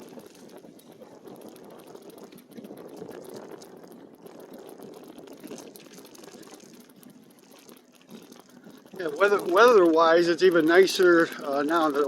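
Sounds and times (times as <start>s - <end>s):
bike tyres on dirt trail: 0.0s - 12.0s.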